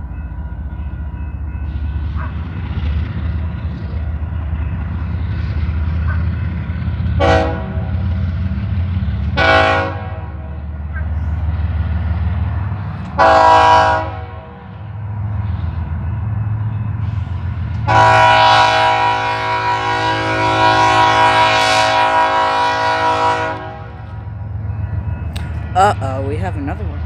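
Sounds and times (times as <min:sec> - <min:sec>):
low rumble of train: 0:00.0 - 0:27.0
locomotive air horn blasts: 0:07.1 - 0:08.0, 0:09.3 - 0:10.6, 0:13.2 - 0:14.6, 0:17.8 - 0:24.1.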